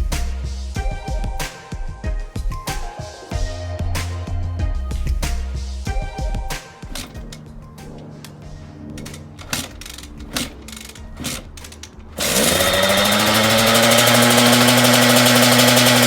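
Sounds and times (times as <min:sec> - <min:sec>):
two-stroke engine buzzing: 0:08.9 - 0:16.0.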